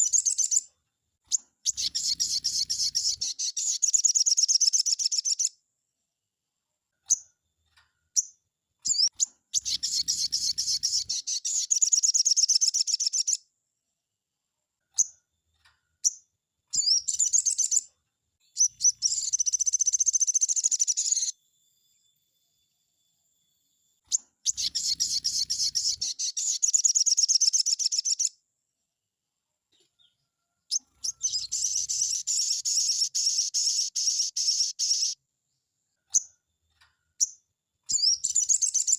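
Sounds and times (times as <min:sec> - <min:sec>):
songbird singing rapidly: 0:00.0 - 0:00.7, 0:01.3 - 0:05.5, 0:08.2 - 0:13.4, 0:16.0 - 0:17.9, 0:18.5 - 0:21.3, 0:24.1 - 0:28.4, 0:30.7 - 0:35.2, 0:37.2 - 0:38.9
single bird calls: 0:24.1 - 0:28.2, 0:30.7 - 0:35.2.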